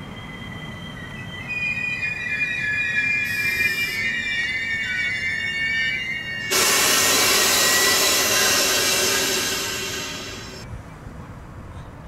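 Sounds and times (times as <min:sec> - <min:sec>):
train wheels squealing on rails: 0:00.0 - 0:10.7
loud steady hiss: 0:06.4 - 0:10.6.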